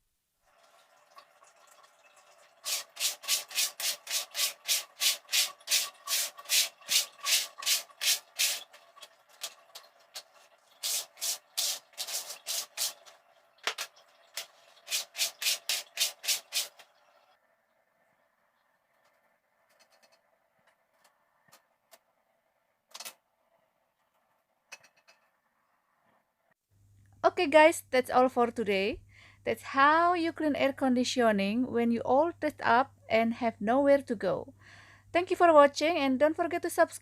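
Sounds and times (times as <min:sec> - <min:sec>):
back-and-forth rubbing strokes: 0:02.7 - 0:08.8, 0:10.7 - 0:13.1, 0:14.8 - 0:16.9
faint steady hum: 0:16.9 - 0:36.9.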